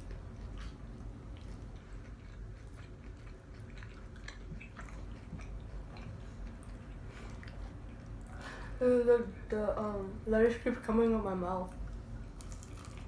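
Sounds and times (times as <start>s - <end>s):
person chewing food: 0.0s - 8.8s, 11.7s - 13.0s
low steady hum: 0.0s - 13.0s.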